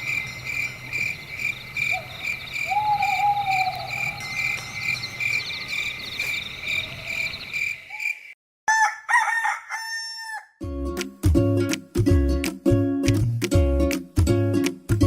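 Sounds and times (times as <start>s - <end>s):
frogs and insects chirping: 0.0s - 8.4s
rooster crowing: 8.7s - 10.5s.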